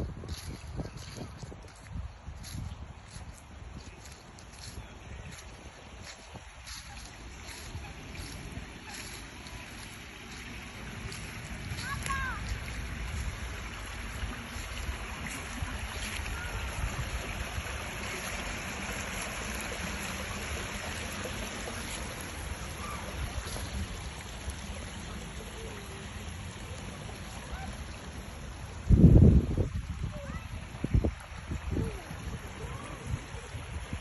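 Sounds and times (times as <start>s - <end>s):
stream flowing: 0.0s - 34.0s.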